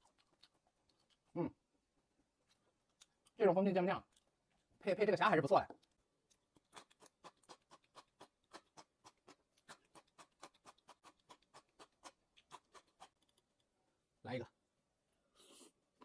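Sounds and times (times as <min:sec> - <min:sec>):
chewing crisp vegetable: 0:00.0 - 0:01.6, 0:02.2 - 0:13.8.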